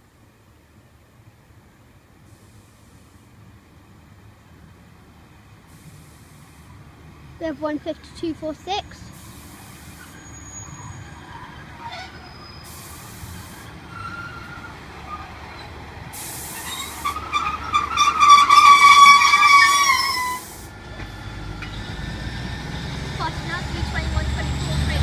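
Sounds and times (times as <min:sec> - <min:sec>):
train rumbling: 0:00.0 - 0:25.0
air hissing: 0:05.7 - 0:06.8, 0:09.0 - 0:10.7, 0:12.6 - 0:13.8, 0:16.1 - 0:20.7
brakes squealing: 0:05.7 - 0:25.0.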